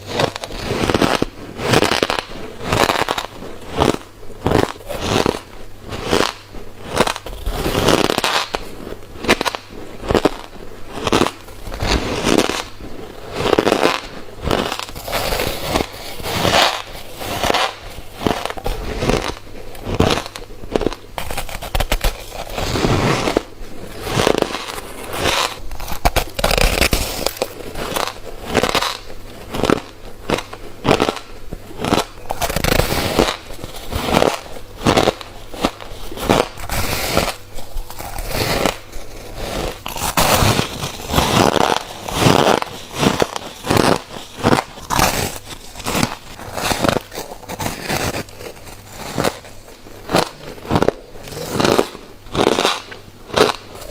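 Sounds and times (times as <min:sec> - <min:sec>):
chewing crunchy frost: 0:24.0 - 0:53.9.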